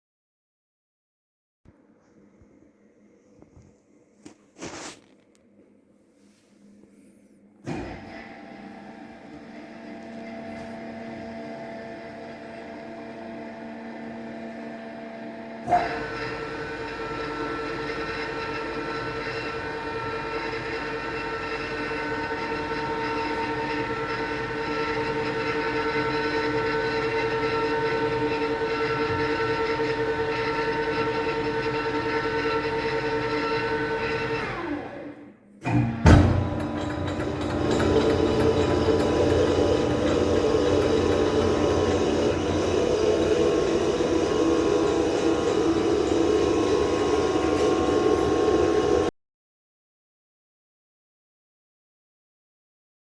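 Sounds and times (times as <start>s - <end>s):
electric motor hum: 7.6s - 49.1s.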